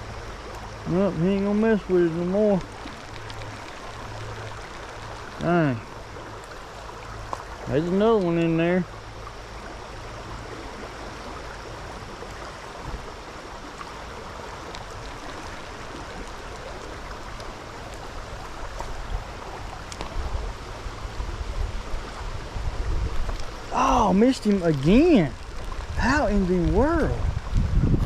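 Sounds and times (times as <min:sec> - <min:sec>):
stream water rushing: 0:00.0 - 0:28.0
low rumbling gusts: 0:17.6 - 0:28.0.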